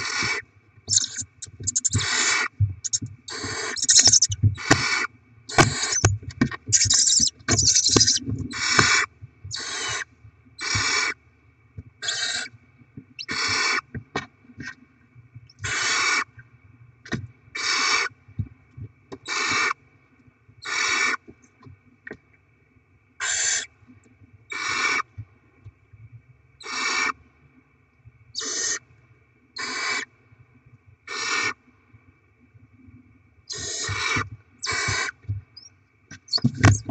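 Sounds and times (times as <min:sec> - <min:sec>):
owl chicks hissing begging calls: 0:00.0 - 0:06.1, 0:06.7 - 0:11.2, 0:12.0 - 0:12.5, 0:13.2 - 0:13.8, 0:15.6 - 0:16.3, 0:17.6 - 0:18.1, 0:19.2 - 0:19.8, 0:20.6 - 0:21.2, 0:23.2 - 0:23.7, 0:24.5 - 0:25.0, 0:26.6 - 0:27.2, 0:28.4 - 0:28.8, 0:29.6 - 0:30.1, 0:31.1 - 0:31.6, 0:33.5 - 0:35.7
birds scuffling and knocking: 0:05.5 - 0:09.0, 0:36.2 - 0:36.9.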